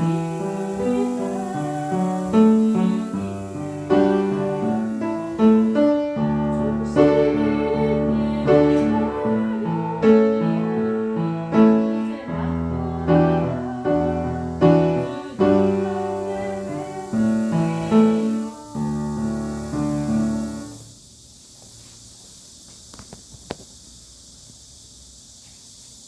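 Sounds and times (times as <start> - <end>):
piano playing hymn chords: 0.0 - 20.8.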